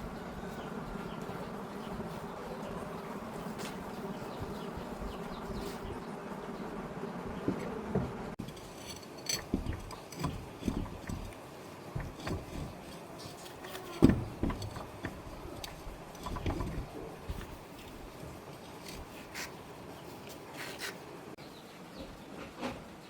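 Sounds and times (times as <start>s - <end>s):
motor buzzing drone: 0.0s - 8.4s
sharp knocks and clanks: 7.4s - 17.6s.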